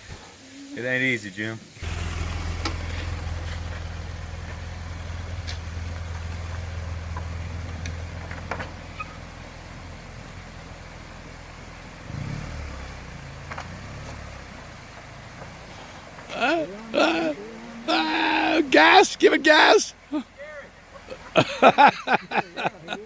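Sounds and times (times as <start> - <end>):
motorcycle engine idling: 1.8 - 18.6.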